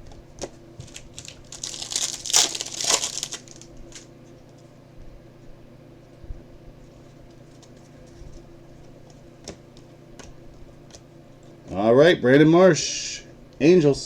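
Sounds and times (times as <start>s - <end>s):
wrapper crinkling torn open: 0.8s - 4.1s.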